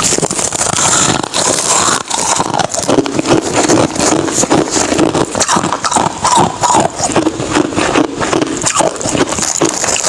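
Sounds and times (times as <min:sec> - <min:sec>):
ice being chewed: 0:00.0 - 0:10.0.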